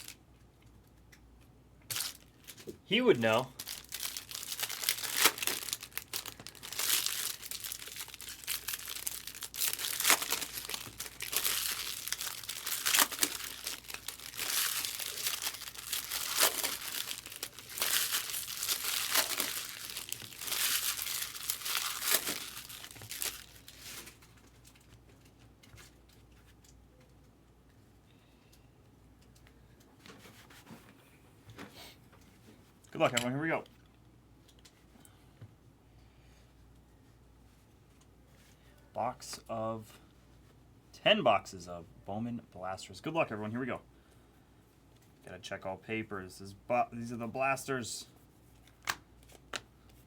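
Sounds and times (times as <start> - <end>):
plastic packaging crinkling and tearing: 0.0 - 0.2, 1.9 - 25.0.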